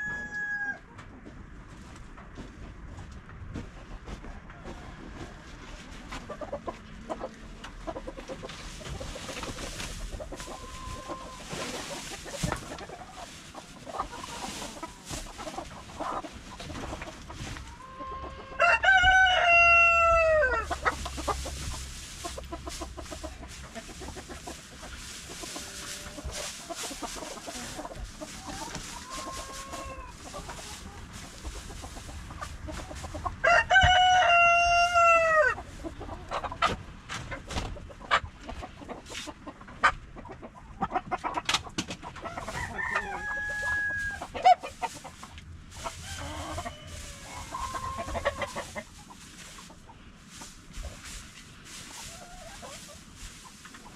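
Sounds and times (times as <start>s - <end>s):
rooster crowing: 0.0s - 0.8s, 18.0s - 20.7s, 33.4s - 35.6s, 42.3s - 44.3s, 46.0s - 48.5s
hens clucking softly: 0.0s - 53.9s.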